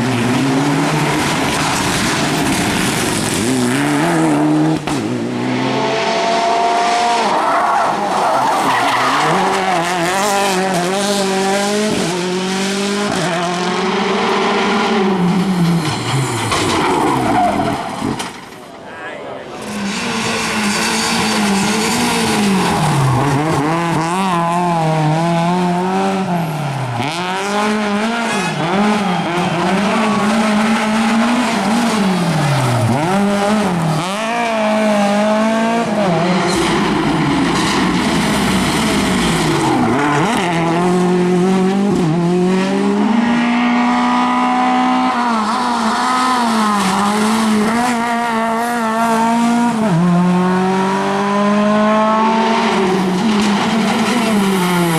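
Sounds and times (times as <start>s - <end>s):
rally car engine accelerating: 0.0s - 18.2s, 19.6s - 54.9s.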